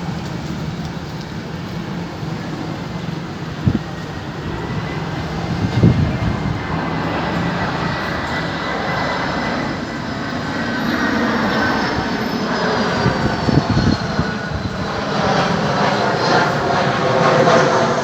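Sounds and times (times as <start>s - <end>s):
jet engine roar with whine: 0.0s - 18.0s.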